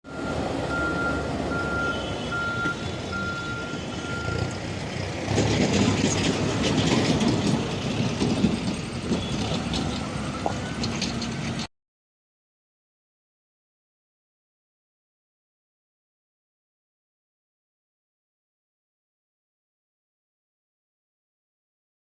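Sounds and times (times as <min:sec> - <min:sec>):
diesel engine rumble: 0:00.0 - 0:11.7
reversing alarm beeping: 0:00.1 - 0:04.5
machinery clattering: 0:04.4 - 0:11.7.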